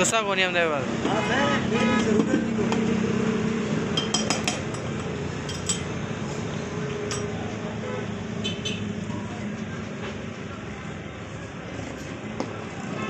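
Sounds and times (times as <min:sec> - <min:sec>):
light metallic clinks and taps: 0:04.0 - 0:05.9, 0:07.1 - 0:07.4.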